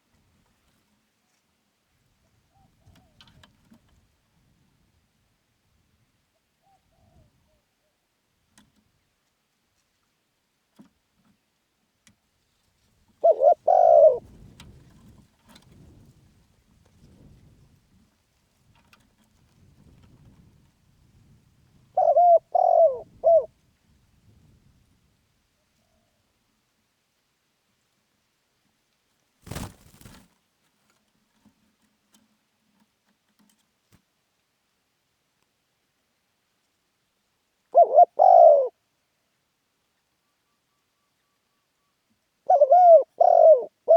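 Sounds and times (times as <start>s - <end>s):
dove cooing: 13.2s - 14.8s, 21.9s - 23.5s, 37.7s - 38.8s, 42.5s - 43.9s.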